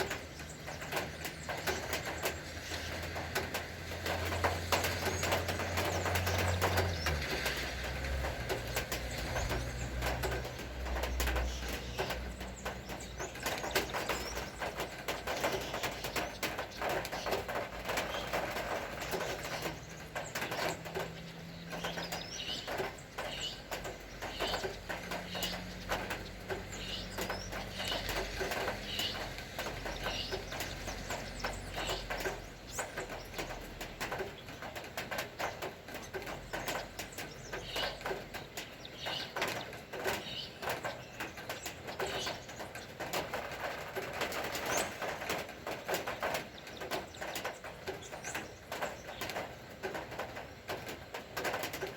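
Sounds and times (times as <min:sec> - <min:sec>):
birds chirping: 0:00.0 - 0:51.9
rain dripping and tapping: 0:00.0 - 0:51.9
vehicle engine passing: 0:02.8 - 0:12.2.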